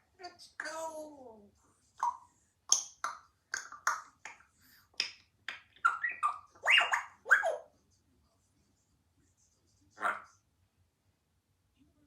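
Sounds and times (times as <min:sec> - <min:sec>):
parrot clicking and popping: 0:02.0 - 0:06.0.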